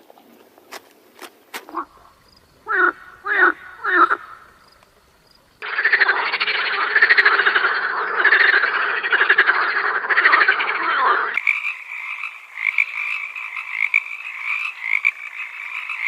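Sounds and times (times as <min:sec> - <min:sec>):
frogs croaking chorus: 0:01.7 - 0:16.0
higher-pitched frog croaking: 0:01.7 - 0:16.0.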